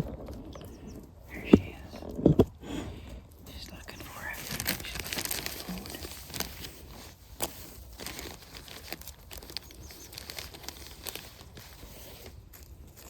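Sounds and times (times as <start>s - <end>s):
soft crackles and rustles: 0.0s - 13.0s
faint high bird chirps: 0.5s - 1.5s, 9.6s - 10.2s.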